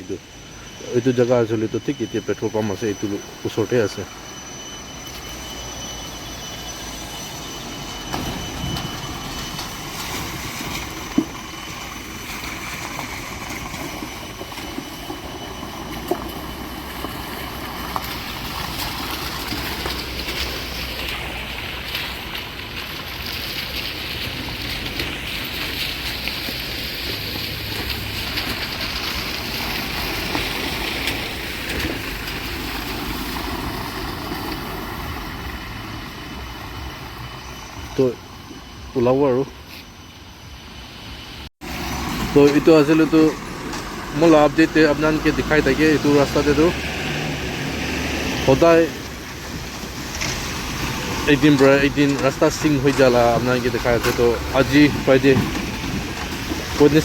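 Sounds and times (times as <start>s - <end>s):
vehicle road rumble and rattle: 6.2s - 57.0s.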